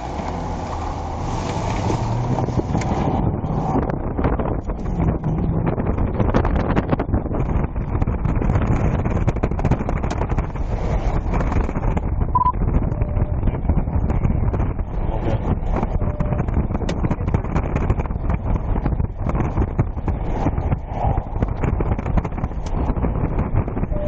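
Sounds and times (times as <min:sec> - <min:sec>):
wind buffeting microphone: 0:00.0 - 0:24.0
short high beep: 0:12.4 - 0:13.3.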